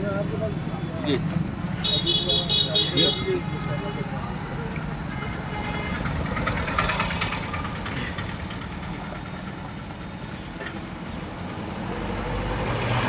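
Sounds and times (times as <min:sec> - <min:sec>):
vehicle engine rumbling: 0:04.6 - 0:12.8.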